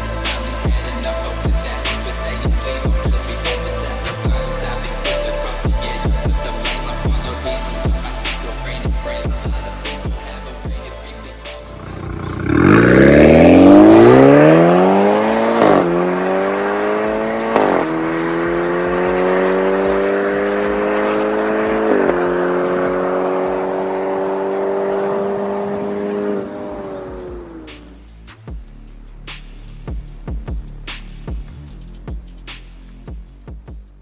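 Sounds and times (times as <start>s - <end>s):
car engine accelerating hard: 11.7s - 28.0s.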